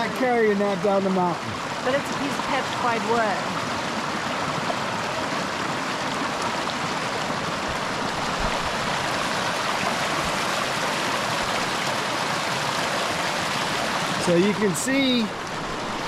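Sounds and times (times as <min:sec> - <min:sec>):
creek water rushing: 0:00.0 - 0:16.0.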